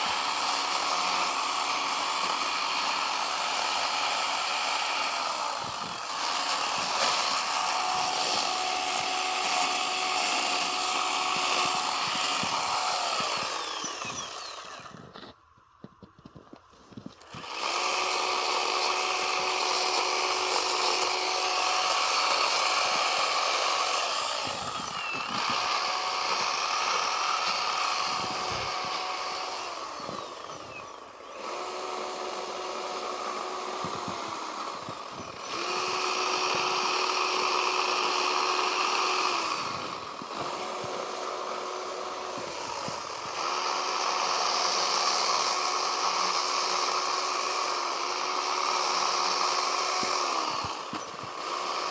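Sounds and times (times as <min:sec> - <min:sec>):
chainsaw carving snow: 0:00.0 - 0:51.9.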